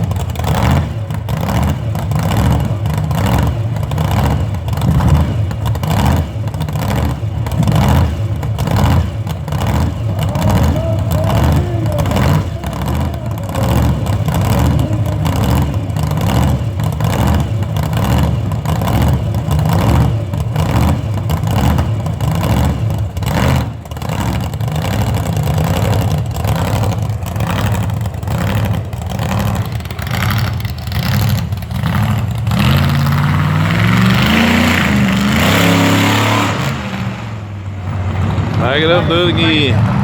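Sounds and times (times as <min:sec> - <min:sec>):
backhoe diesel engine revving: 0:00.0 - 0:40.0.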